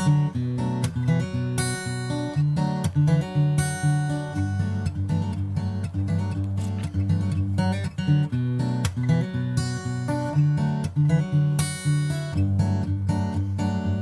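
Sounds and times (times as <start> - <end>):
acoustic guitar music: 0.0 - 14.0.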